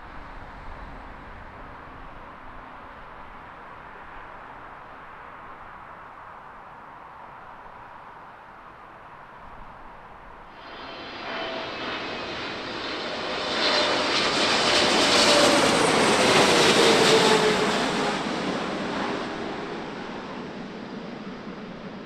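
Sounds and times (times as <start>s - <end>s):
airliner engine noise: 9.1s - 22.0s.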